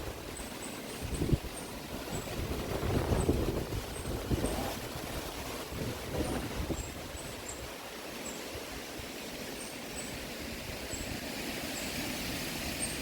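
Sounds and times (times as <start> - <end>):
wind buffeting microphone: 0.0 - 9.1
wind through trees: 0.0 - 13.0.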